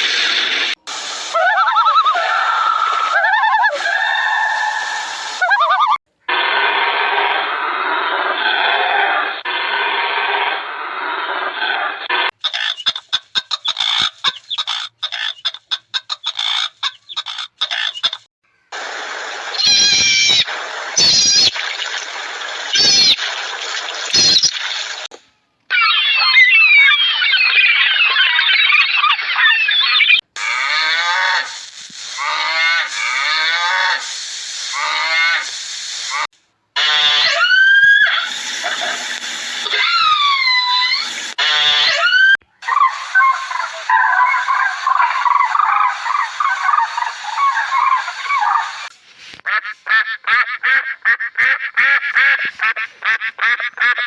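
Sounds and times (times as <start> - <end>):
chicken clucking: 12.4 - 18.3.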